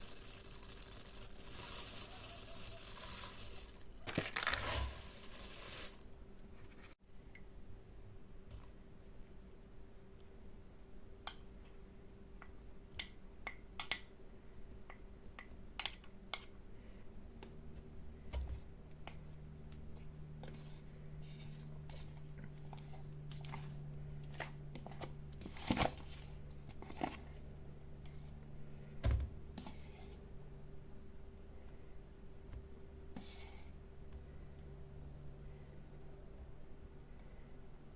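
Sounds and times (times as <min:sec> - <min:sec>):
utensils clicking and knocking: 0:00.0 - 0:06.1
faint steady hum: 0:00.0 - 0:37.9.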